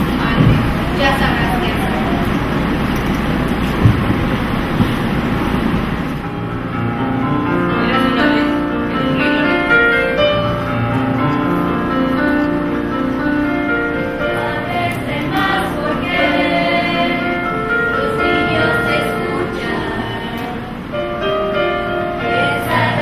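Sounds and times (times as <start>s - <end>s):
musical accompaniment: 6.2s - 23.0s
choir singing: 13.2s - 23.0s.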